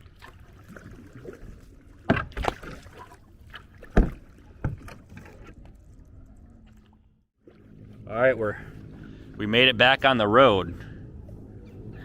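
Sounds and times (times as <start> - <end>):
paddle strokes in water: 0.0 - 9.4.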